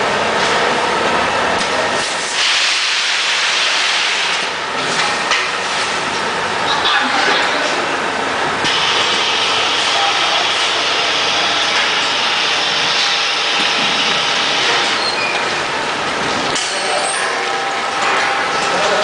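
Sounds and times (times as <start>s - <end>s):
hiss: 2.3s - 4.4s
packaging machinery running: 8.4s - 19.0s.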